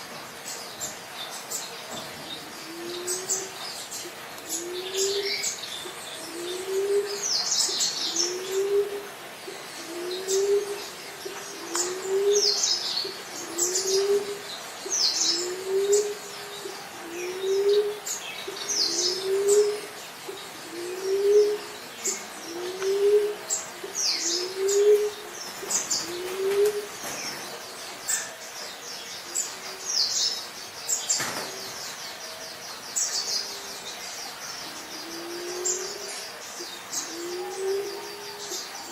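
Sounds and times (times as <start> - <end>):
birds chirping: 0.0 - 38.9
dove cooing: 2.3 - 27.1, 34.9 - 38.9.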